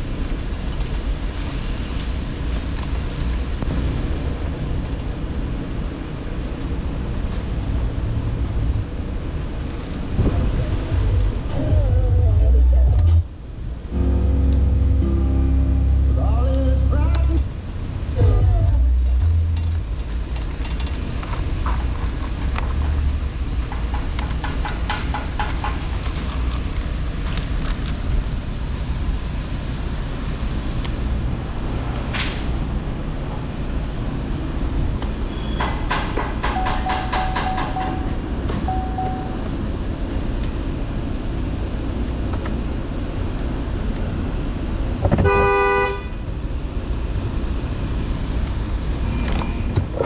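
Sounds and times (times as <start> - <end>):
low outdoor rumble: 0.0 - 50.0
faint steady beeps: 36.6 - 39.5
vehicle horn toot: 45.2 - 46.2.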